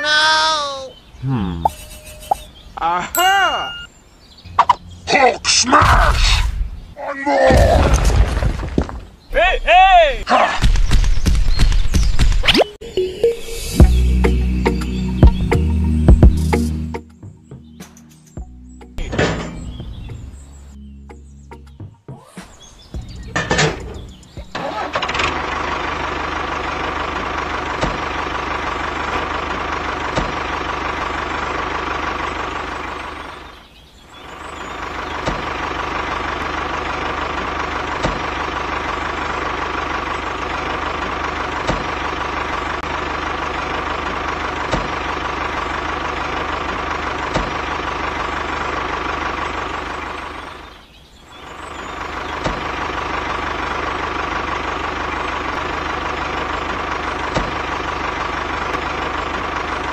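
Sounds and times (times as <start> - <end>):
diesel engine running: 1.2 - 2.6, 4.5 - 5.8, 12.9 - 17.8, 23.0 - 59.9.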